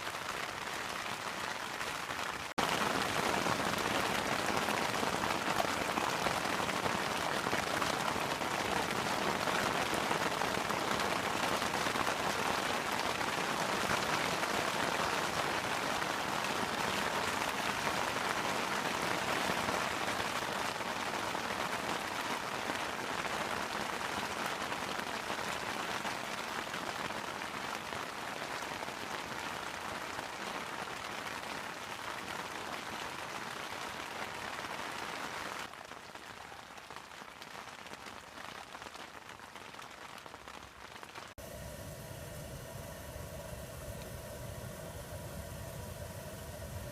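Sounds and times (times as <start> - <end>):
steady rain falling: 0.0 - 41.5.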